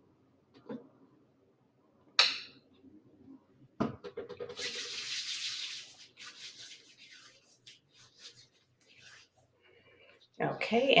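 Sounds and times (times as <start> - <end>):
hands rubbing: 4.5 - 9.5.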